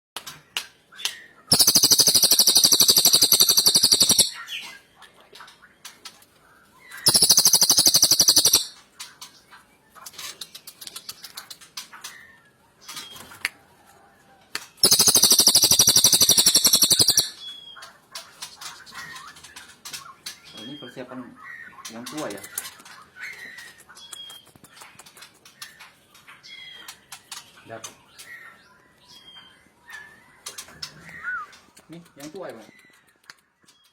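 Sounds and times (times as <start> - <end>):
faint bird chirps and ticks: 0.2 - 13.9, 14.5 - 33.9
high buzzy bird trill: 1.5 - 4.5, 7.1 - 8.8, 14.8 - 17.4.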